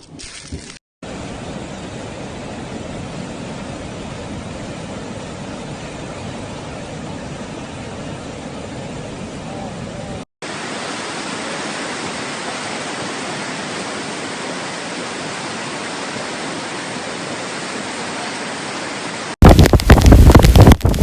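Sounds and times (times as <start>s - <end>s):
heavy rain: 10.4s - 21.0s
wind buffeting microphone: 19.4s - 21.0s.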